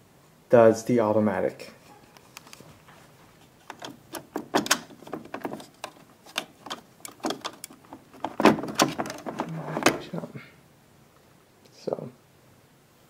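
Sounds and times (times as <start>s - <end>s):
plastic parts clicking and knocking: 3.6s - 10.1s.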